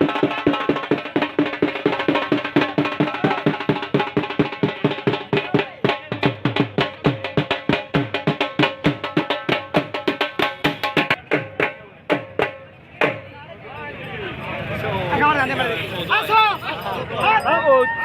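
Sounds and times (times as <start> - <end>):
fast steady drumming: 0.0 - 13.3.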